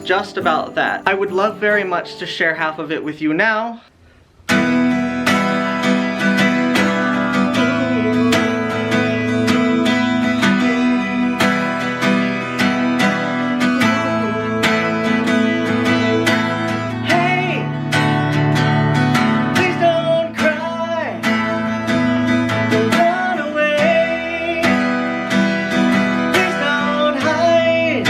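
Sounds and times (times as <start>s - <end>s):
strummed acoustic guitar: 0.0s - 3.4s, 4.4s - 28.0s
sliding melodic line: 0.0s - 3.7s.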